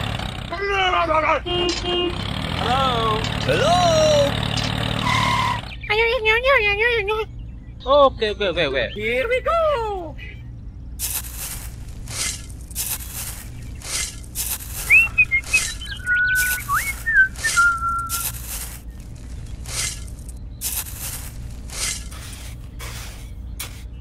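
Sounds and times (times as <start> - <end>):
person whistling: 14.8 - 18.3.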